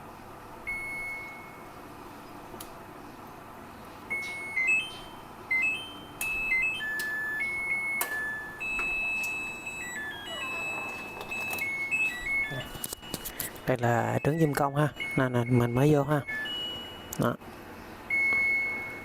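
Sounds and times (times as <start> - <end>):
electronic beeper playing tune: 4.1 - 17.4.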